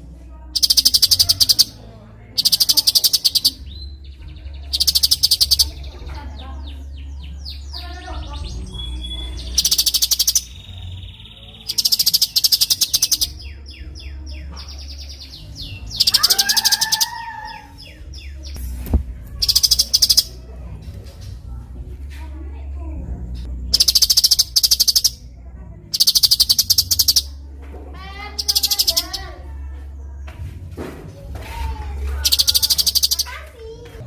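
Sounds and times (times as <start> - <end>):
bird rapid high chattering: 0.5 - 1.8, 2.4 - 6.0, 6.7 - 20.4, 23.5 - 25.3, 25.9 - 27.4, 28.3 - 29.4, 32.2 - 33.4
bird chirps and descending whistles: 15.9 - 18.3.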